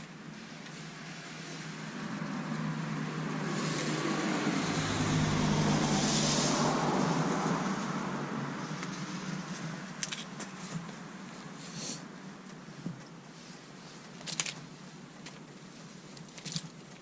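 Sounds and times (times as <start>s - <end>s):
car passing by: 0.8s - 10.0s.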